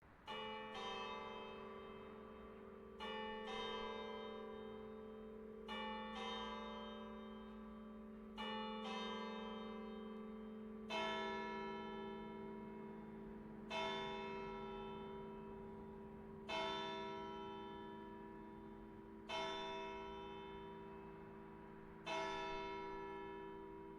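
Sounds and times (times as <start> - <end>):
church bells ringing: 0.2 - 23.9.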